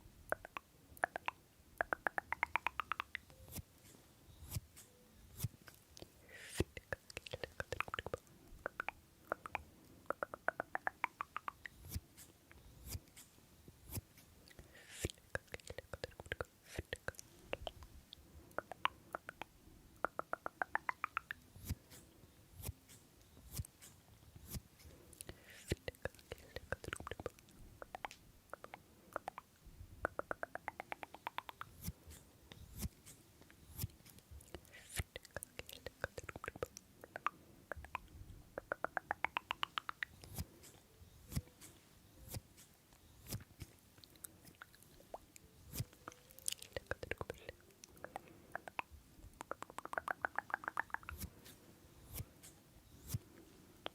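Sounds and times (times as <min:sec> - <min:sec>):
small sharp clicks: 0:00.3 - 0:17.9, 0:18.6 - 0:53.9
crunchy chewing: 0:39.6 - 0:48.3.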